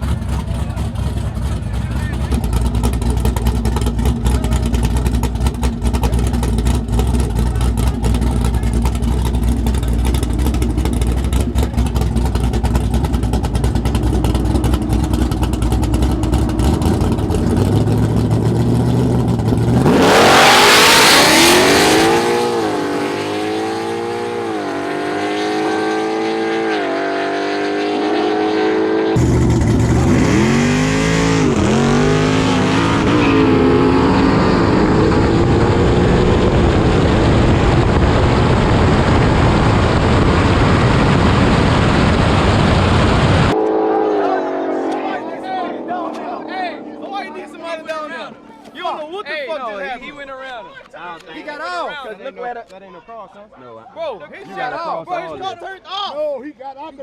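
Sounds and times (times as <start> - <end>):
drag cars rumbling low: 0.0 - 48.7
engine revving through gear changes: 2.3 - 38.5.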